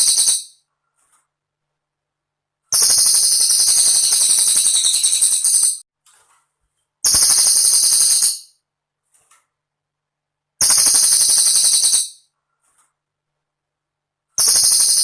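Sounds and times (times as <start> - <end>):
bird singing high-pitched trill: 0.0 - 0.6, 2.8 - 5.8, 7.1 - 8.6, 10.6 - 12.2, 14.4 - 15.0.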